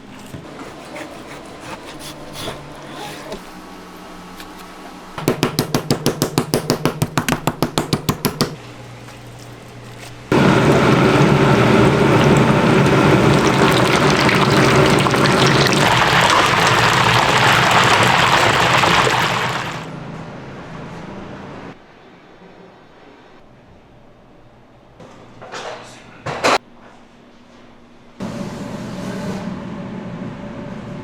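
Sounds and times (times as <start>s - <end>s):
rapid even knocking: 5.2s - 8.6s
deep-frying sizzle: 10.3s - 19.9s.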